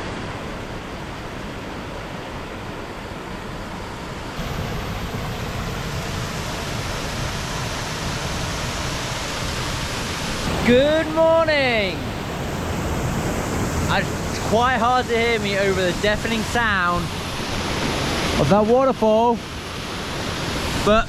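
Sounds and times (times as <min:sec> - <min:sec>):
waterfall rushing: 0:04.2 - 0:21.0.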